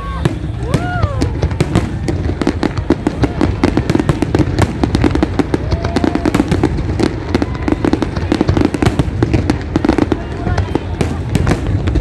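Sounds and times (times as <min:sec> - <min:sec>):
fireworks crackling bangs and pops: 0:00.0 - 0:12.0
low rumble of booms: 0:00.2 - 0:09.8.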